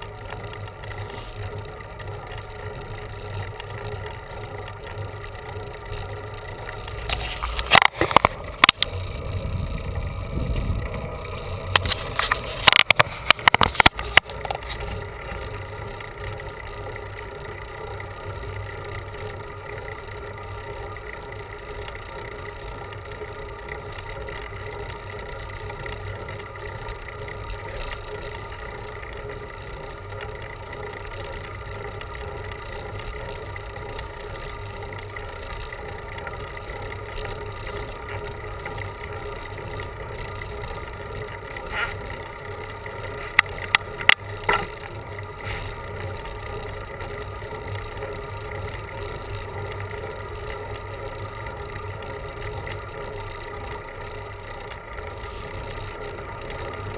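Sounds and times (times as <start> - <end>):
bicycle riding on road: 0.0 - 56.9
sharp clicks: 11.4 - 14.9.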